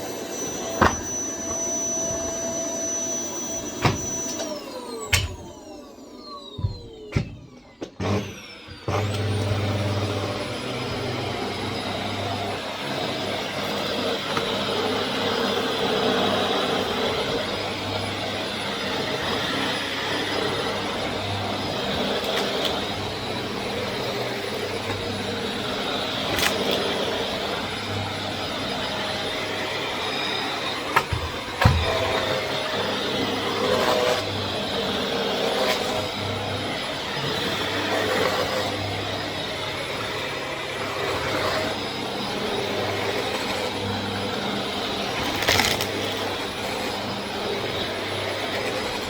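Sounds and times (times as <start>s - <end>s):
vacuum cleaner running: 0.0s - 49.0s.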